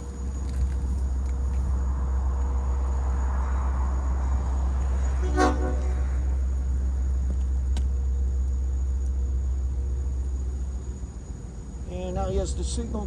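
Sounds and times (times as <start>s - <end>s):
diesel locomotive idling: 0.0s - 13.0s
locomotive horn toot: 5.2s - 6.4s.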